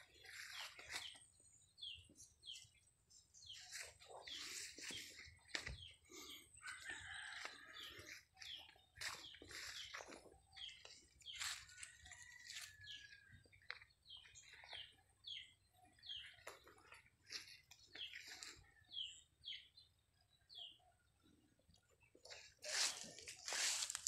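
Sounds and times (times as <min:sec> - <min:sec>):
faint birds chirping: 0:00.0 - 0:24.0.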